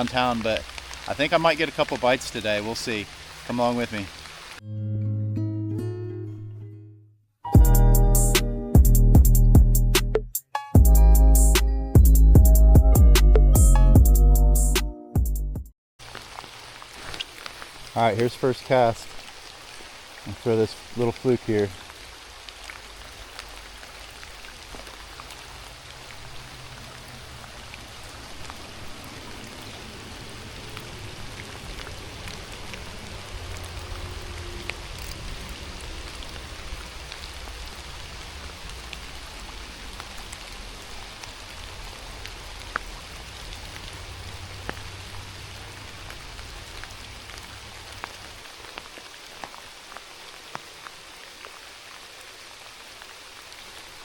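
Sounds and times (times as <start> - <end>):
sharp ticks of raindrops: 0.0 - 4.6, 16.0 - 54.0
steady rain falling: 0.0 - 4.6, 16.0 - 54.0.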